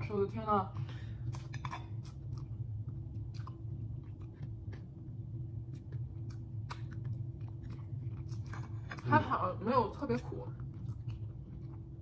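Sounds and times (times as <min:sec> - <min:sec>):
steady low hum: 0:00.0 - 0:12.0
people chewing: 0:00.8 - 0:12.0
soft mouth clicks and smacks: 0:05.8 - 0:07.2.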